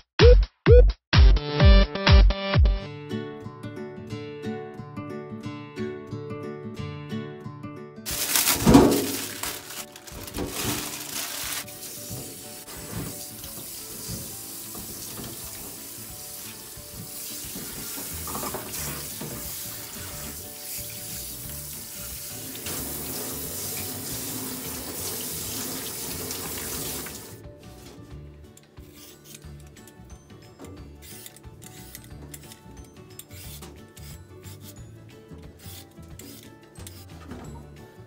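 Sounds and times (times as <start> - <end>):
tap water running into sink: 11.8 - 27.4.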